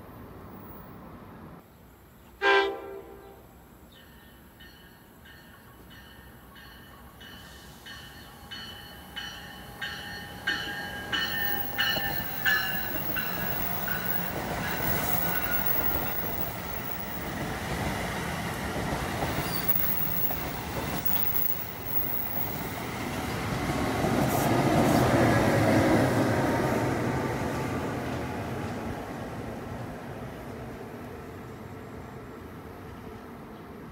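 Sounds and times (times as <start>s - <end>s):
train bell ringing: 3.9s - 17.4s, 19.6s - 22.7s
train rushing past: 4.7s - 33.4s.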